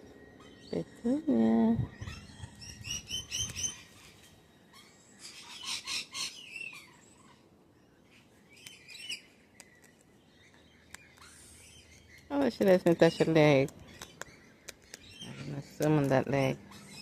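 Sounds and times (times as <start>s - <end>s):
parrot chirping: 1.8s - 7.5s, 8.1s - 17.0s.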